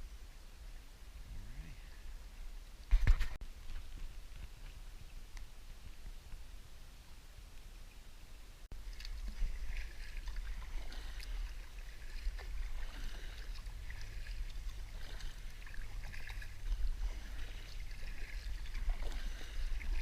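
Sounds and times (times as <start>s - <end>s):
steady low rumble: 0.0s - 20.0s
paddle strokes splashing water: 8.7s - 20.0s.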